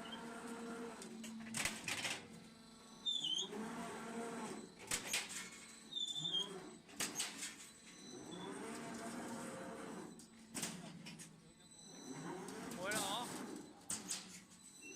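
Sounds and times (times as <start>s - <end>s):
motor whine: 7.8s - 10.5s.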